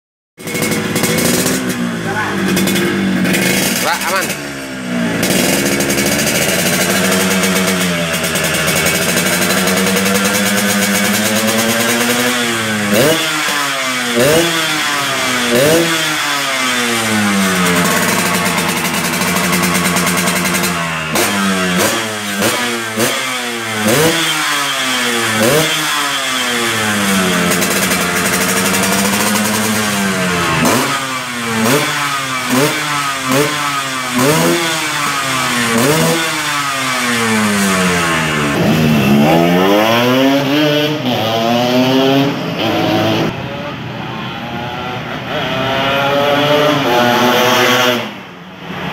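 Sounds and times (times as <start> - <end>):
two-stroke motorcycle engine idling: 0.4 - 13.1, 14.2 - 38.8.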